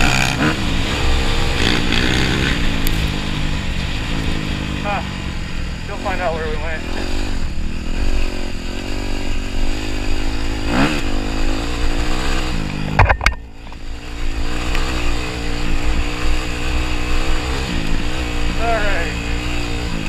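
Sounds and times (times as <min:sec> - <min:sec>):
dirt bike engine revving: 0:00.0 - 0:20.0
sharp knocks: 0:12.9 - 0:13.5.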